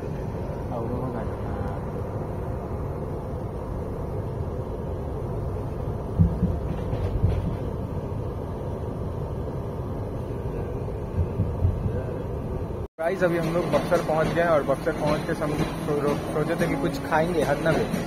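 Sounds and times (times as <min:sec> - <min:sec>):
train coach rumbling on rails: 0:00.0 - 0:18.0
short low thumps: 0:11.1 - 0:12.3.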